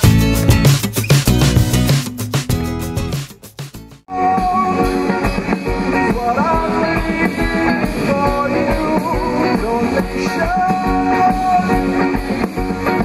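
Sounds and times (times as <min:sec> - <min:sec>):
rock song with guitar and singing: 0:04.1 - 0:13.0.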